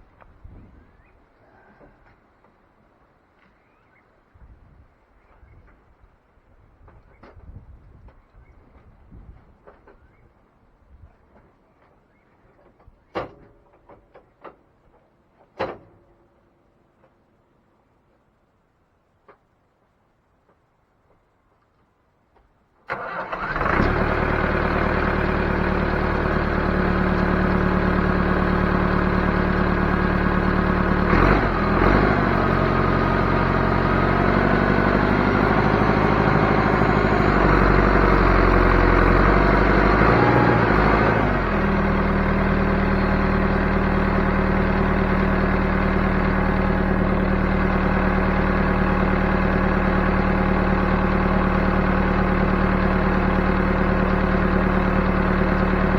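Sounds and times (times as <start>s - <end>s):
backhoe engine running: 22.9s - 55.9s.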